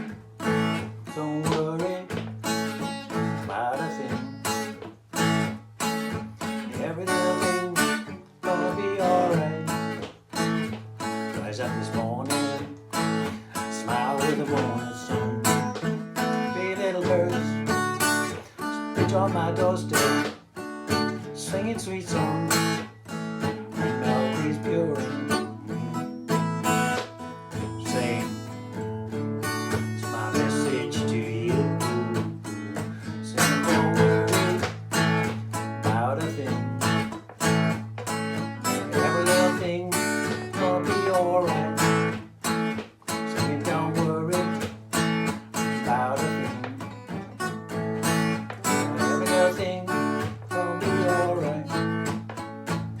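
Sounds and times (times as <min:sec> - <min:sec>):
acoustic guitar strumming: 0:00.0 - 0:53.0.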